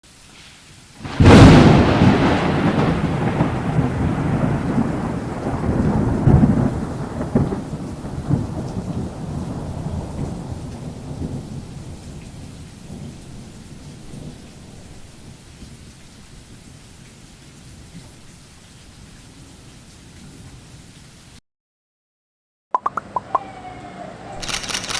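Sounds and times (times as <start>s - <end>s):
rain falling: 0.0s - 21.4s
thunder crack and rumble: 1.0s - 16.7s.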